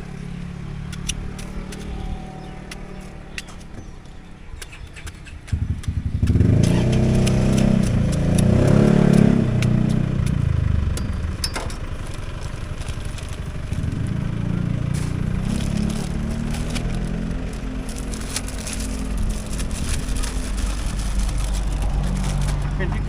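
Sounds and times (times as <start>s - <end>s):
motorbike engine running: 0.0s - 23.0s
sharp clicks: 0.9s - 2.0s, 4.6s - 11.1s.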